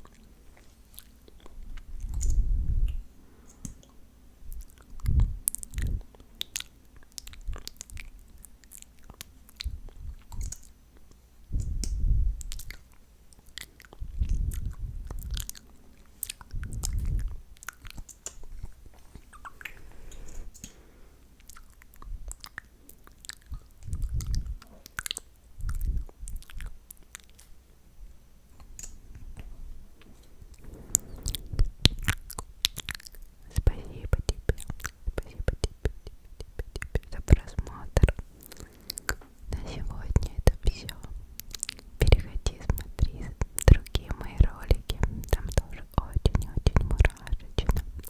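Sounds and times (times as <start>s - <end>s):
wet lip and tongue clicks: 0.0s - 27.7s, 28.5s - 48.0s.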